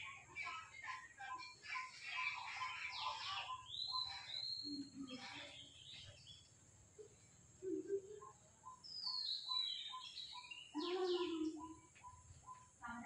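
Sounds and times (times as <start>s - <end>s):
loud full bird call: 0.0s - 6.6s, 8.6s - 12.7s
high sliding bird chirps: 1.4s - 6.2s.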